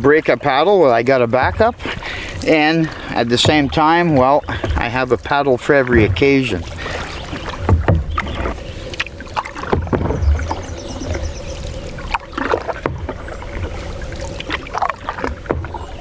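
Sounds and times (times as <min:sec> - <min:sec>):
paddle strokes in water: 0:00.0 - 0:16.0
sharp knocks: 0:03.2 - 0:04.9, 0:05.9 - 0:08.6.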